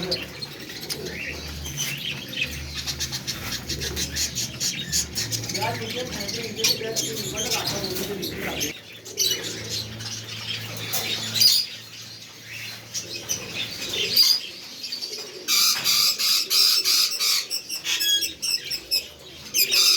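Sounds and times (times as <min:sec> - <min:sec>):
lovebirds chirping: 0:00.0 - 0:19.9.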